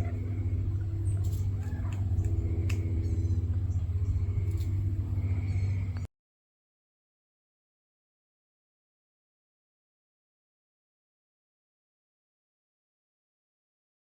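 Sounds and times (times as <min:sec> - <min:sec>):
faint animal calls and clicks: 0:00.0 - 0:06.1
motor humming: 0:00.0 - 0:06.1.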